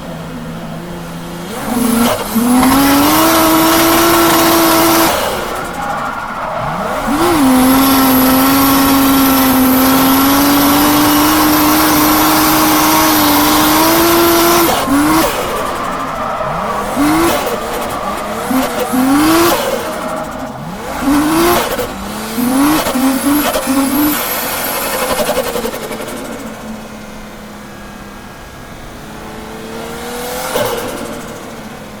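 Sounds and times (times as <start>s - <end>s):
car engine revving and misfiring: 0.0s - 32.0s
tyres squealing: 1.5s - 25.1s.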